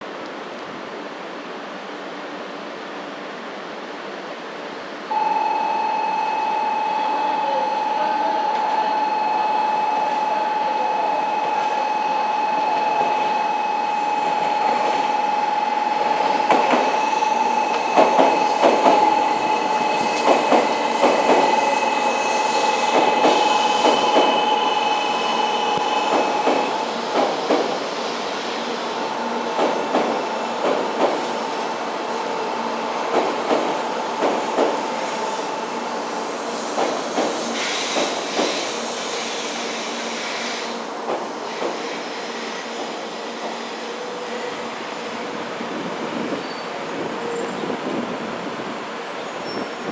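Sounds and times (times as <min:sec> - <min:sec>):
high-pitched train whine: 0:05.1 - 0:49.9
train wheels clacking over joints: 0:17.7 - 0:21.8, 0:22.4 - 0:24.5, 0:25.7 - 0:27.9, 0:29.6 - 0:31.4, 0:33.1 - 0:35.0, 0:36.7 - 0:38.8.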